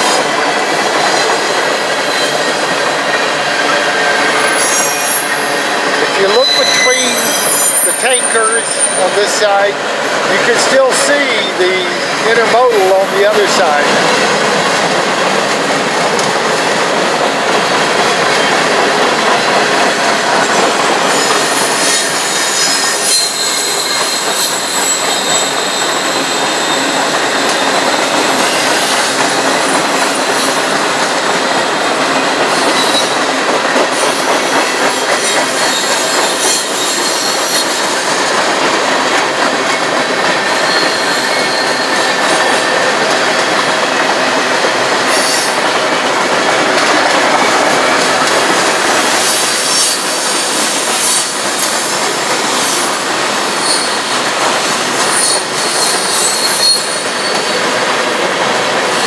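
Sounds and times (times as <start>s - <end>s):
train cars rolling on rails: 0.0s - 59.0s
high-pitched wheel squeal: 4.4s - 5.6s, 6.2s - 9.1s, 21.1s - 26.9s, 40.5s - 42.1s, 53.6s - 54.0s, 55.1s - 57.6s.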